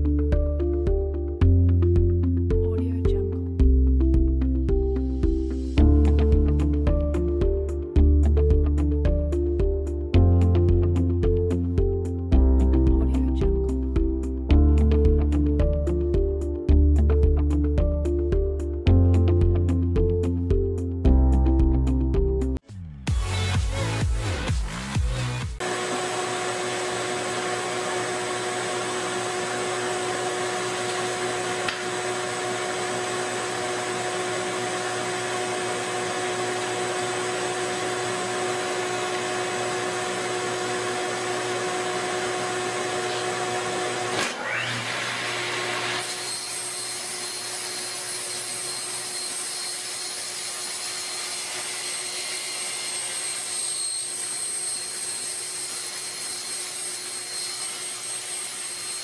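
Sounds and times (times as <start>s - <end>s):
power tool motor whining: 25.6s - 59.0s.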